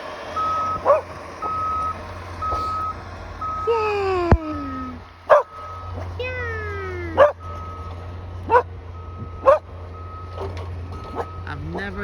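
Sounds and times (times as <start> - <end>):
reversing alarm beeping: 0.4 - 3.9, 4.8 - 12.0
dog yelping: 0.7 - 1.6, 5.3 - 5.7, 7.0 - 7.5, 8.5 - 8.8, 9.4 - 9.8, 10.4 - 11.4
dog whining: 0.8 - 1.6, 6.2 - 7.4, 8.5 - 8.7, 9.4 - 9.7.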